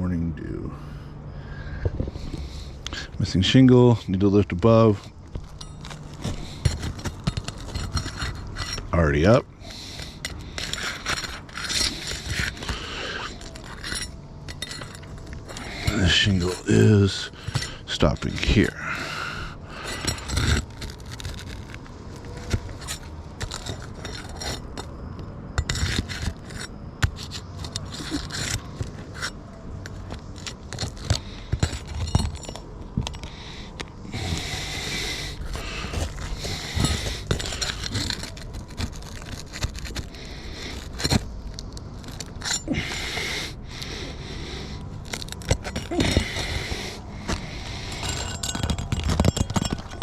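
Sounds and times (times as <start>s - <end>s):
roof shingles scraping: 4.3s - 25.0s, 25.6s - 50.0s
sharp clicks and clinks: 4.6s - 18.8s, 19.8s - 44.0s, 44.8s - 50.0s.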